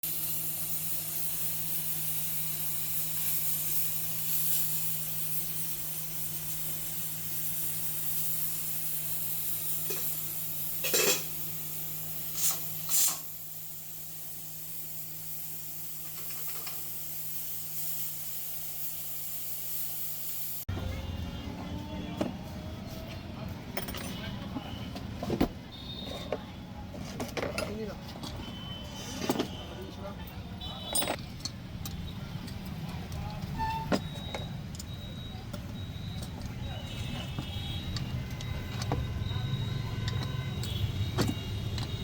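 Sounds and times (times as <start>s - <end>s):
pressure cooker hissing steam: 0.0s - 20.7s, 33.4s - 42.0s.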